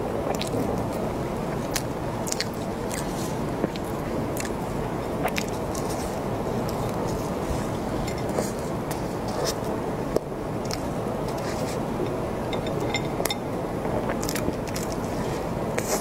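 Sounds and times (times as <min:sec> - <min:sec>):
crisp pastry chewing: 0:00.3 - 0:09.7, 0:10.6 - 0:11.8, 0:14.0 - 0:16.0.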